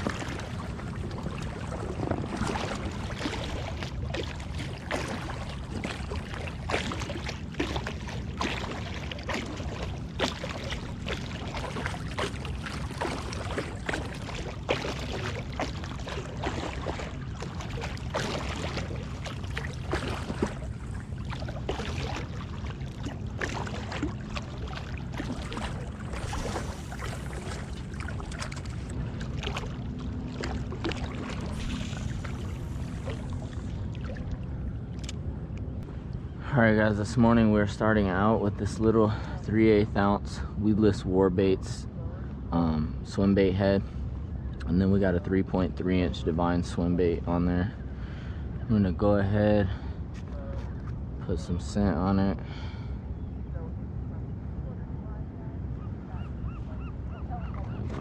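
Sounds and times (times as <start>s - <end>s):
small water splashes: 0.0s - 35.2s
water lapping low wash: 0.0s - 58.0s.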